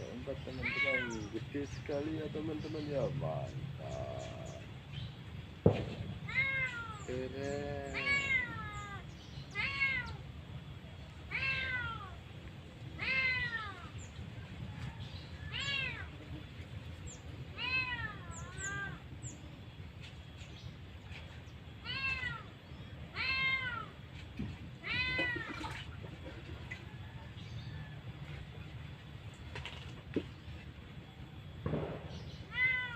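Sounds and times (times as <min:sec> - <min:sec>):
animal mewing calls: 0:06.3 - 0:10.2.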